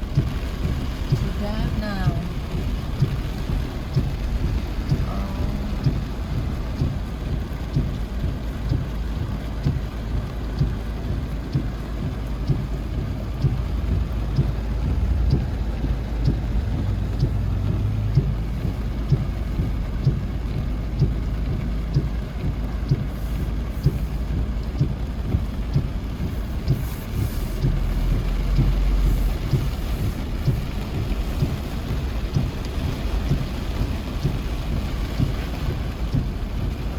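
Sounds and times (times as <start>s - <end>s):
faint regular ticking: 0.0s - 36.9s
steady rain: 0.0s - 36.9s.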